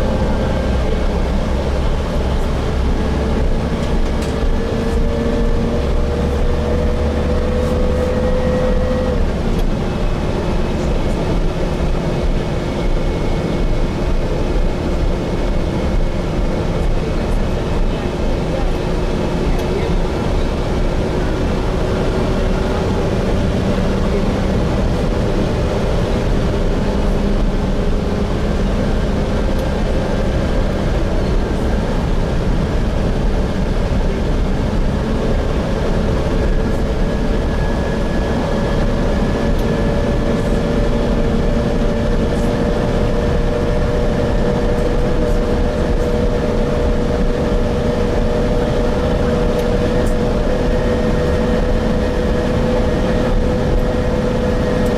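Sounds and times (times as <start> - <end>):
bus engine and road rumble: 0.0 - 54.9.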